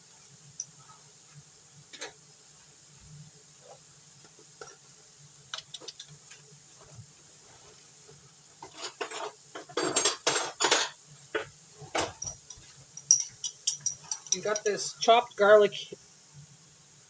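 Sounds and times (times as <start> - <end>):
metal spoon scraping jar and pan: 12.0 - 14.9.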